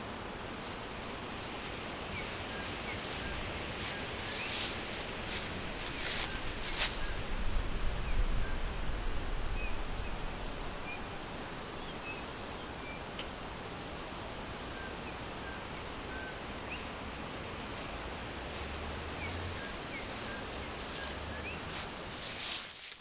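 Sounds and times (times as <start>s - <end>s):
forest rustling hiss: 0.0s - 23.0s.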